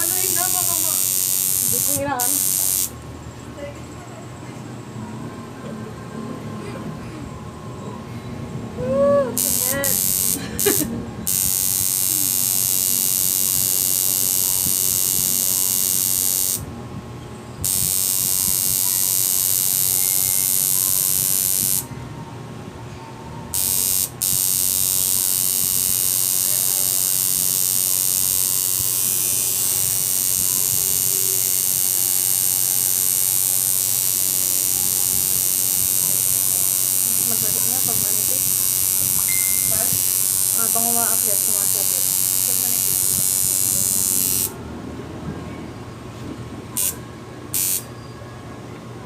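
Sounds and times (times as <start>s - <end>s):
tattoo machine buzzing: 0.0s - 3.0s, 9.2s - 16.7s, 17.6s - 21.9s, 23.5s - 44.6s, 46.8s - 47.9s.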